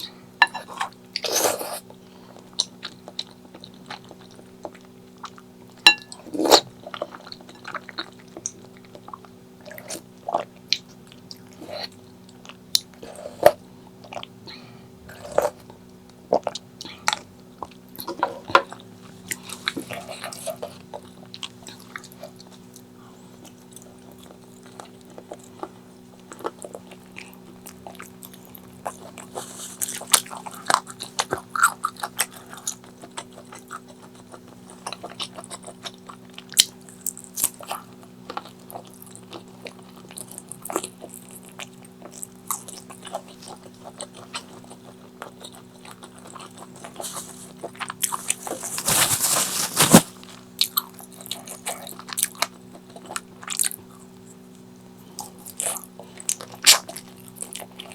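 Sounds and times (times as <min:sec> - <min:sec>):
low electrical hum: 0:00.0 - 0:57.9
wet chewing and biting: 0:16.3 - 0:54.4.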